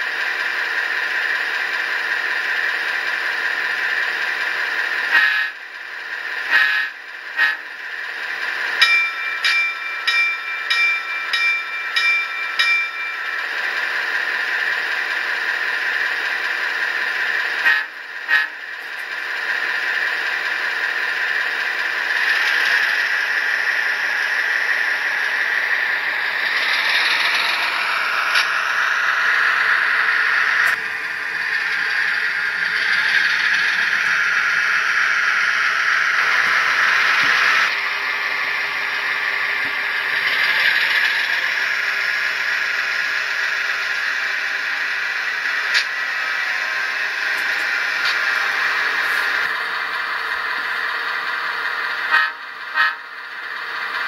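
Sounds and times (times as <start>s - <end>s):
diesel engine through small speaker: 0.0s - 54.0s
ringing signal bell: 8.8s - 14.0s.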